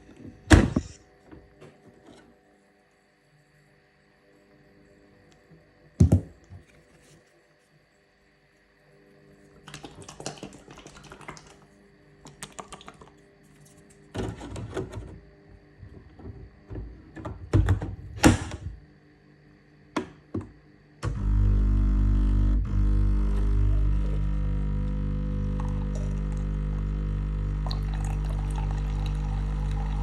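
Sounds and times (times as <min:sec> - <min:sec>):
coffee machine pump humming: 0:21.0 - 0:30.0.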